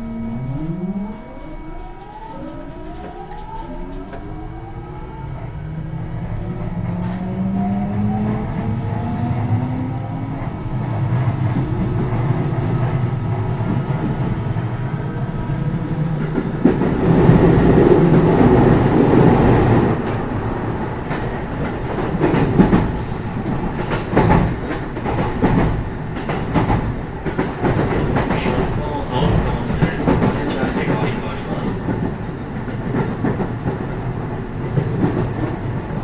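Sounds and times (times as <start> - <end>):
train motor whine: 0.0 - 10.8
train wheel noise: 0.0 - 36.0
rail joint clacks: 15.8 - 36.0.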